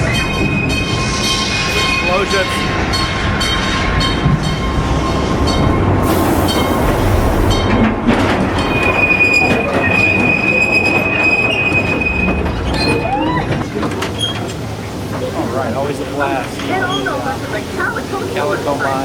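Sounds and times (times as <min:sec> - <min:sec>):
ride cars rumbling on track: 0:00.0 - 0:19.0
wheels squealing: 0:03.9 - 0:14.6, 0:16.6 - 0:18.3.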